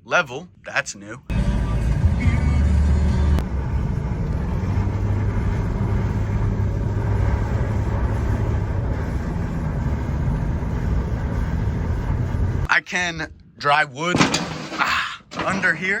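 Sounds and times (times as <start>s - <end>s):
fan humming: 1.3s - 12.7s.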